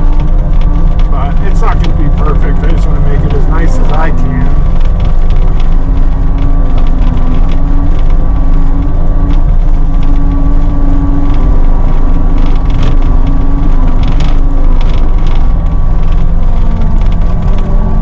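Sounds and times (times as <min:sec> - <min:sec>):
diesel engine running: 0:00.0 - 0:18.0
high whine: 0:00.0 - 0:18.0
rocks clanking and rattling: 0:00.0 - 0:18.0.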